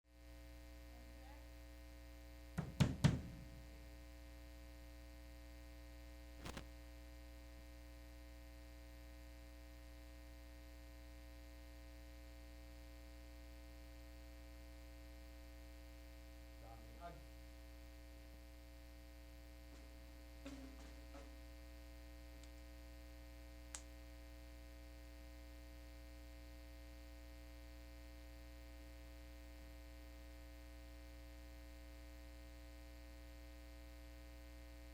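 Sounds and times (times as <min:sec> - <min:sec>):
electrical mains hum: 0:07.2 - 0:34.9.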